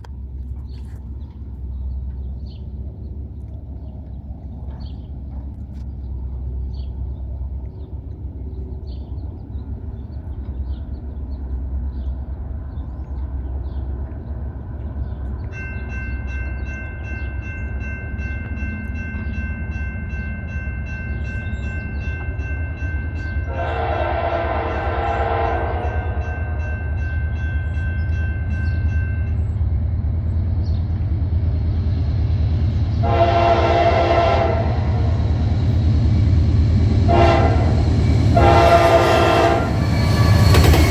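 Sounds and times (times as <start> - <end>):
locomotive engine rumble: 0.0 - 40.9
locomotive horn blasts: 23.3 - 26.9, 33.0 - 35.5, 37.0 - 40.7.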